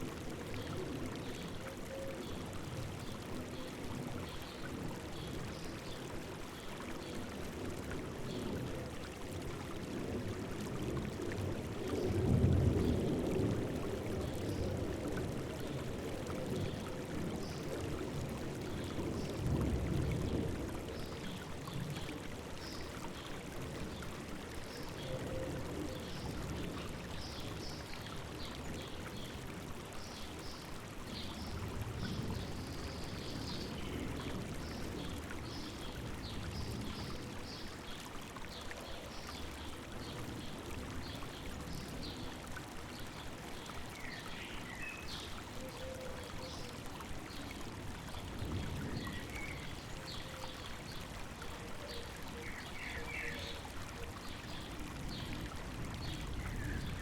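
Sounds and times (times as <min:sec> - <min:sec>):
river water babbling: 0:00.0 - 0:57.0.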